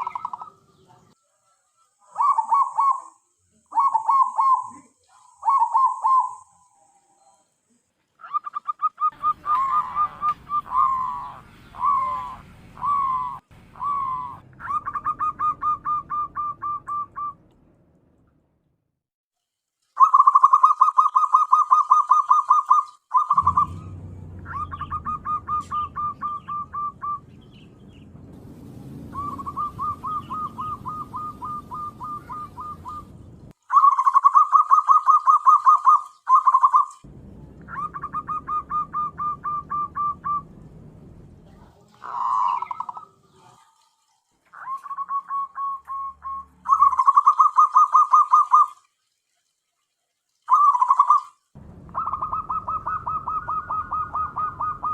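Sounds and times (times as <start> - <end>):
dove calling in trilled phrases: 0.0 - 7.4, 8.2 - 17.4, 20.0 - 28.0, 29.1 - 37.0, 37.7 - 40.4, 41.9 - 43.8, 44.5 - 48.8, 50.5 - 54.9.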